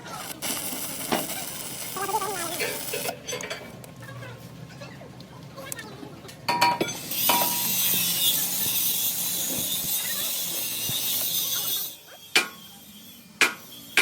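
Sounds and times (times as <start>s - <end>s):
loud steady hissing: 0.0s - 3.2s.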